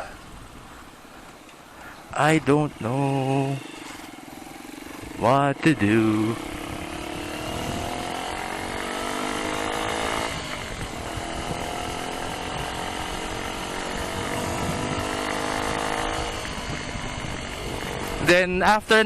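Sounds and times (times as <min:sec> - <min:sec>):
wind noise: 0:00.0 - 0:01.2, 0:06.3 - 0:09.2, 0:09.8 - 0:19.0
motorcycle engine accelerating: 0:02.3 - 0:19.0.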